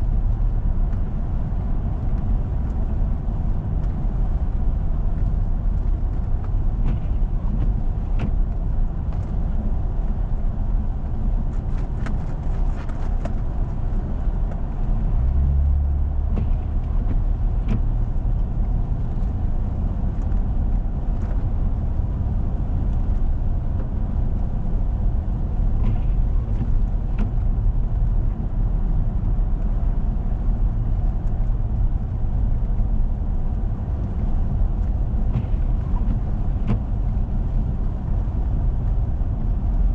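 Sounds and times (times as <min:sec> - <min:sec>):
vehicle driving on snowy road: 0:00.0 - 0:39.9
light ticks: 0:29.2 - 0:33.0.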